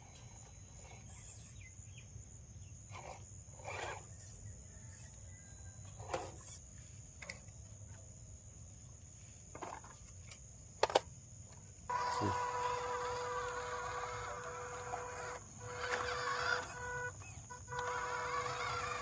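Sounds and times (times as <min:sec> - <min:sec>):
buzzing whine: 0:00.0 - 0:19.0.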